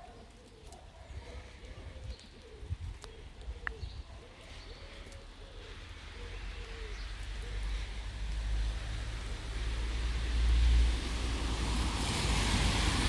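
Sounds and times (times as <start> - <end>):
rain hiss: 5.7 - 13.0.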